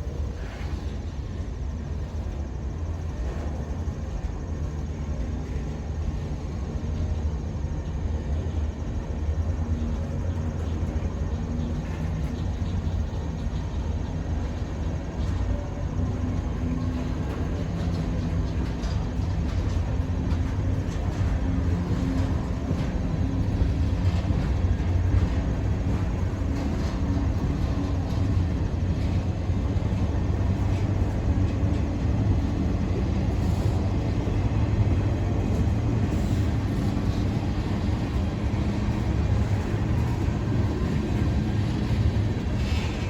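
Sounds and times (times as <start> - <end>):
freight train rumbling past: 0.0 - 43.0.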